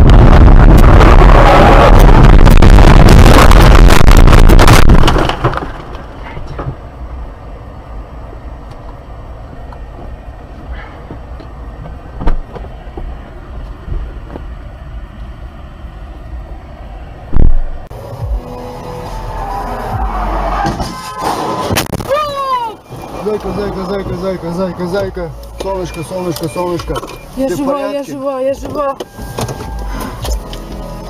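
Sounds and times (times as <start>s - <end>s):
loud distorted noise: 0.0s - 5.3s
vehicle noise: 0.0s - 31.0s.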